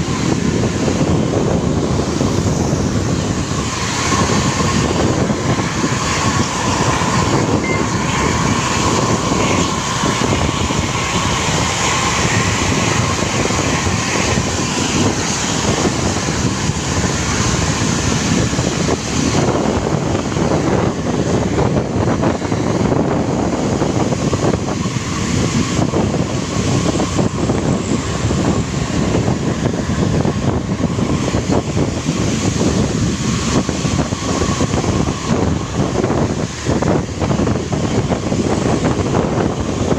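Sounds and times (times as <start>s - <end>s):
faint whine: 0.0s - 21.0s
bus engine and road rumble: 0.0s - 39.9s.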